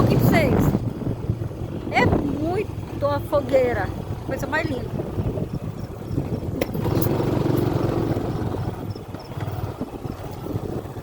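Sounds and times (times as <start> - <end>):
vehicle engine passing by: 6.4 - 11.0.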